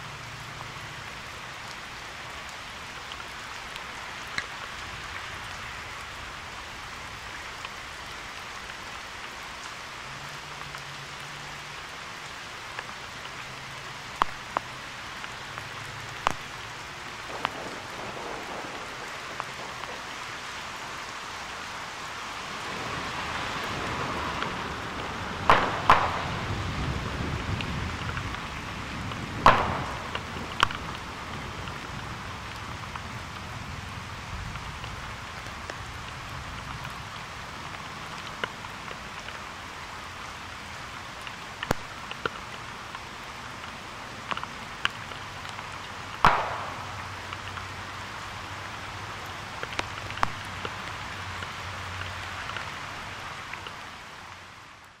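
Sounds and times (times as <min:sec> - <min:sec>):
steady rain: 0:00.0 - 0:55.0
low thunder rumble: 0:17.2 - 0:20.2, 0:25.4 - 0:31.7
sharp thunder cracks: 0:17.3 - 0:20.0, 0:25.5 - 0:26.5, 0:29.4 - 0:30.9, 0:46.3 - 0:47.1.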